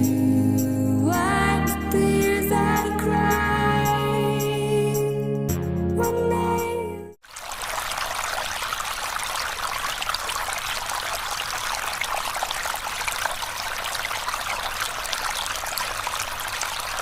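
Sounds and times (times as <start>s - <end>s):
stream trickling: 7.2s - 17.0s.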